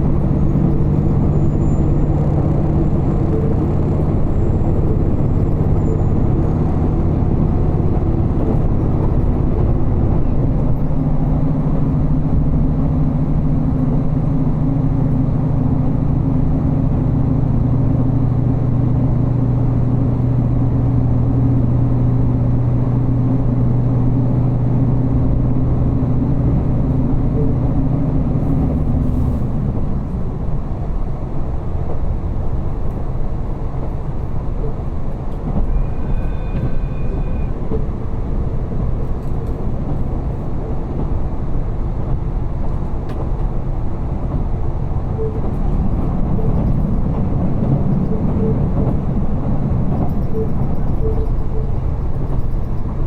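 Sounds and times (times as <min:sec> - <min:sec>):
railcar engine droning: 0:00.0 - 0:53.0
train wheels rumbling on rails: 0:00.0 - 0:53.0
short high tone: 0:35.7 - 0:37.6.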